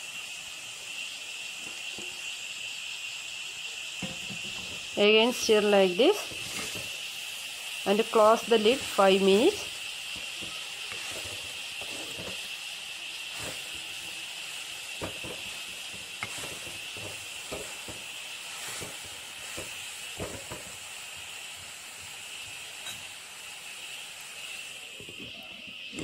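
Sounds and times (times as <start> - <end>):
leaves sizzling in oil: 0.0 - 26.0
metal spoon scraping a pot: 10.2 - 12.5.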